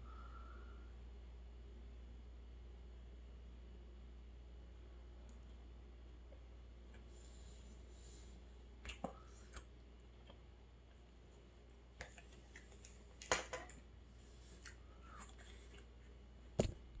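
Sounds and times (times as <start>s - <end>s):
faint hum: 0.0s - 17.0s
person chewing and swallowing: 8.8s - 11.0s, 14.5s - 16.0s.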